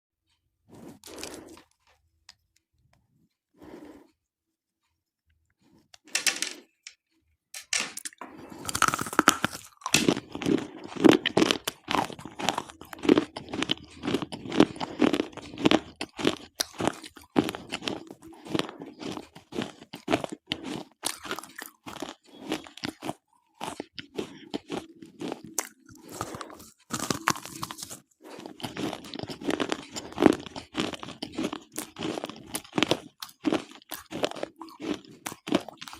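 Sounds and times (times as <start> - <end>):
crunching of pencils being chewed: 0.7 - 2.6, 8.0 - 35.9.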